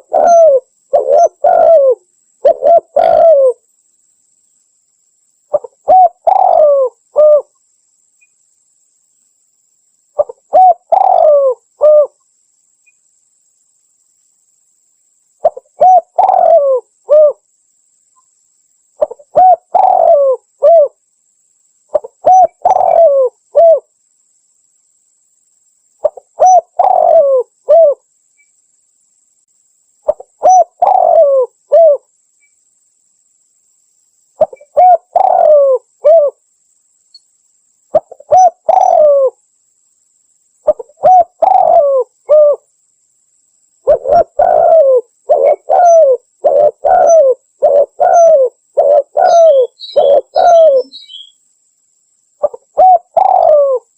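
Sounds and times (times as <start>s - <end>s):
dove cooing: 0.0s - 3.6s, 5.5s - 7.5s, 10.2s - 12.2s, 15.4s - 17.4s, 19.0s - 21.0s, 21.9s - 23.9s, 26.0s - 28.0s, 30.1s - 32.0s, 34.4s - 36.4s, 37.9s - 39.4s, 40.6s - 42.6s, 43.8s - 51.3s, 52.4s - 53.9s.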